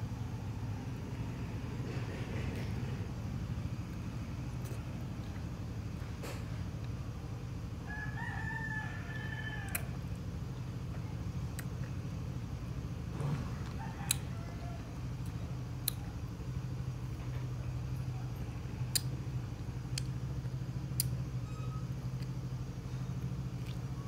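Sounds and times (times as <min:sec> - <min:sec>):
steady low hum: 0:00.0 - 0:24.0
sharp mouth clicks: 0:18.9 - 0:19.1, 0:21.0 - 0:21.2
person chewing: 0:23.6 - 0:23.9.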